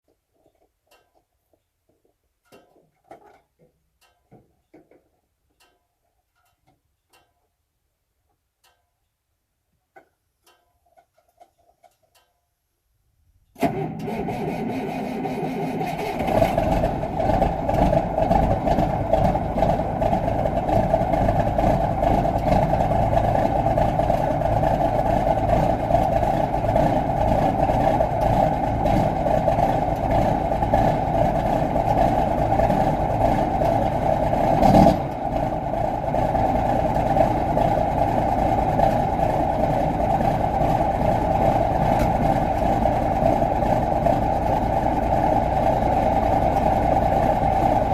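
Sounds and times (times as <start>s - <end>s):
truck diesel engine idling: 13.7s - 47.9s.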